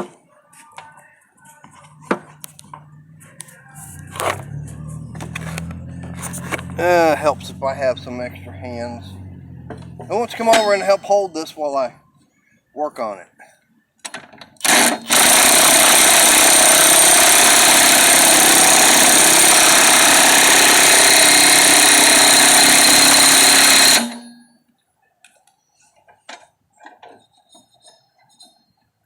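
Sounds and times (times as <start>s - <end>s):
power tool spinning: 3.8s - 8.0s, 14.6s - 24.4s.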